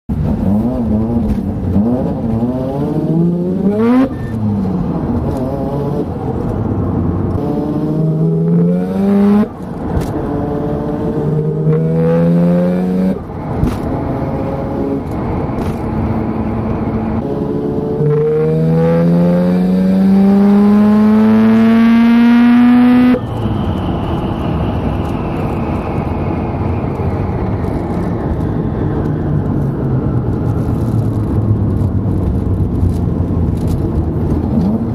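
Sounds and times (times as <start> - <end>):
car engine accelerating: 0.1 - 34.9.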